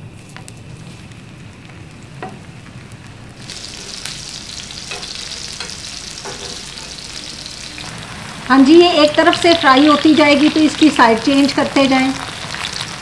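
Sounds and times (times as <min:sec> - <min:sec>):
vegetables sizzling in a pan: 0:00.3 - 0:13.0
metal spatula tapping pan: 0:04.8 - 0:06.6.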